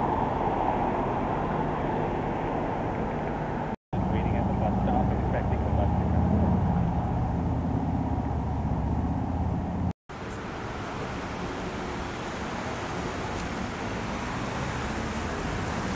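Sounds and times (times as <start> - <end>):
car engine rumbling: 0.0 - 11.2
road traffic noise: 0.0 - 15.9.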